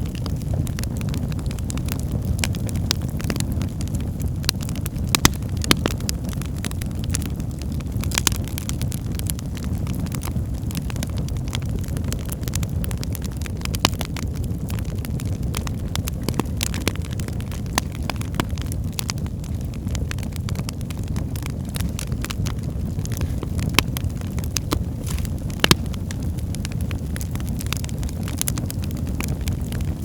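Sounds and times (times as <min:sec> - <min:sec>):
wood fire crackling and popping: 0:00.0 - 0:30.0.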